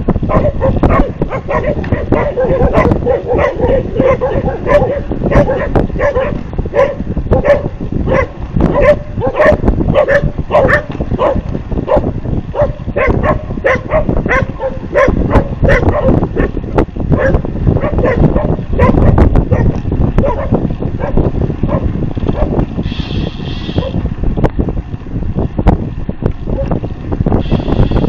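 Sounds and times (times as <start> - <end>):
heavy low rumble: 0.0 - 28.0
dog barking rapidly: 0.2 - 16.6, 17.2 - 22.6, 23.7 - 24.0.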